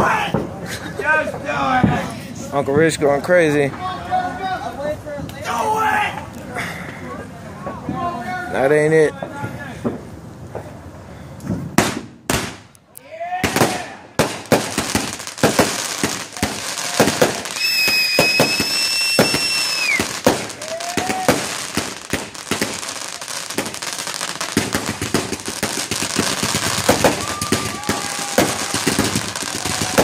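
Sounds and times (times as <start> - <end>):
fireworks bangs and crackling: 0.0 - 3.8, 9.2 - 12.7, 13.4 - 30.0
firework whistle: 17.0 - 21.6, 26.1 - 30.0.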